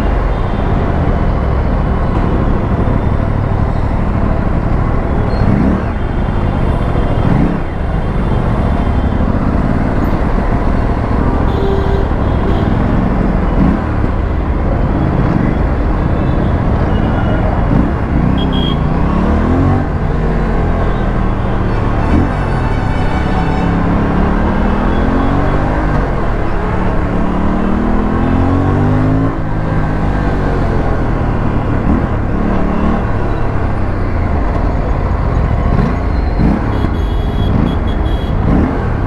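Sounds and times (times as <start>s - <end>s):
motorcycle engine revving: 7.2s - 14.3s, 17.5s - 39.0s.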